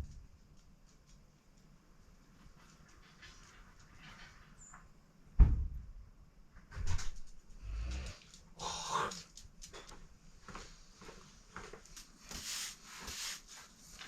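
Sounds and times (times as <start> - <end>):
heavy thud: 5.4 - 5.8.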